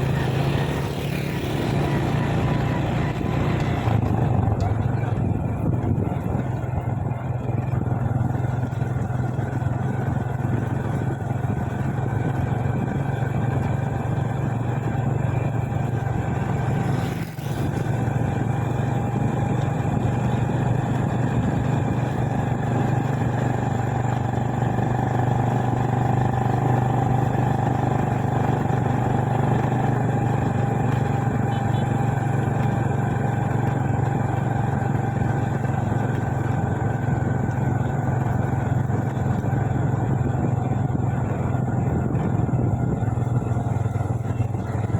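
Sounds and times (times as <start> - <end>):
motorcycle engine running: 0.0 - 44.9
road and wind noise: 0.0 - 44.9.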